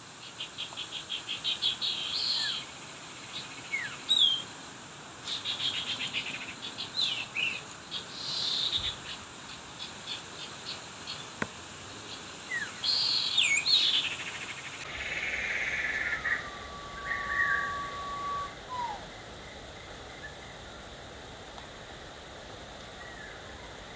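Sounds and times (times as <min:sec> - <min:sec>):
small birds chirping: 0:00.0 - 0:18.0
bird whistle notes sliding down: 0:15.8 - 0:19.1.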